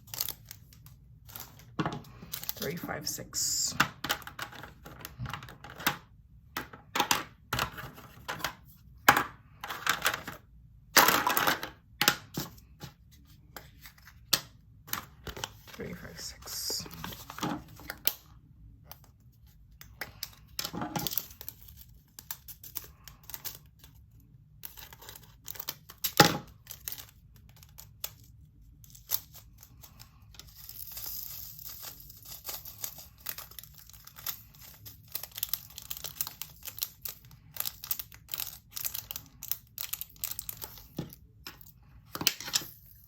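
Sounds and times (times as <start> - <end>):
plastic bags crinkling and tearing: 31.6 - 41.1.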